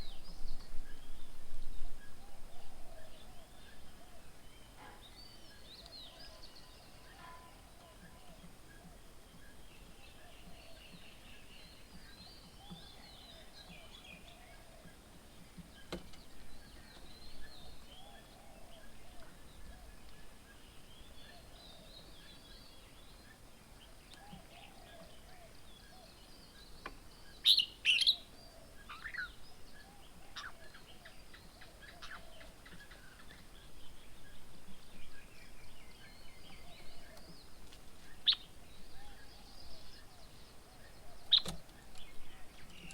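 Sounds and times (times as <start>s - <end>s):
birds calling and chirping: 0.0s - 42.9s
loud sharp bird calls: 27.3s - 33.6s, 38.2s - 42.9s.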